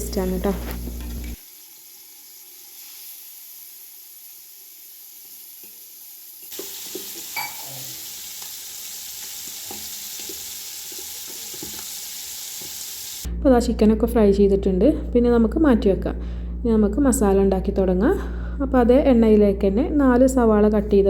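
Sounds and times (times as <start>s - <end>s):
chicken sizzling in hot oil: 0.8s - 13.3s.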